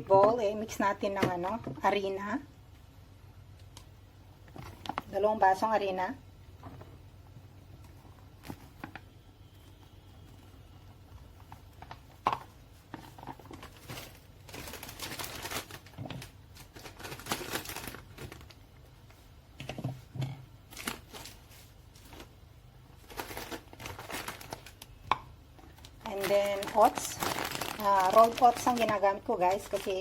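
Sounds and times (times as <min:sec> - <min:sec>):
bag crinkling: 0:12.8 - 0:18.6, 0:20.7 - 0:25.0, 0:25.6 - 0:30.0.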